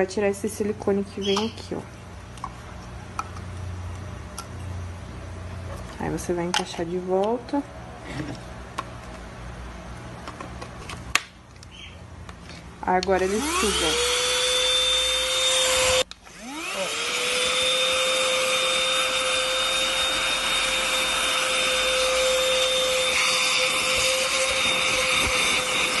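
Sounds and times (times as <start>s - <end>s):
handheld vacuum cleaner whine: 13.2s - 26.0s.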